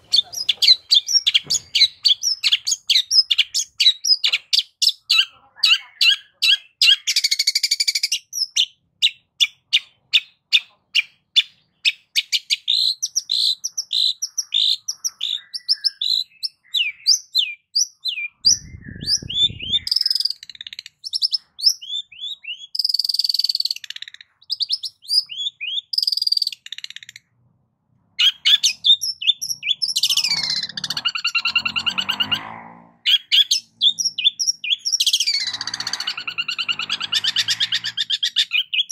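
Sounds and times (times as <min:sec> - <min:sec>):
falling sweeping bird calls: 0:00.0 - 0:04.2, 0:28.2 - 0:38.9
shrike chirps and trills: 0:00.0 - 0:27.3, 0:28.2 - 0:38.9.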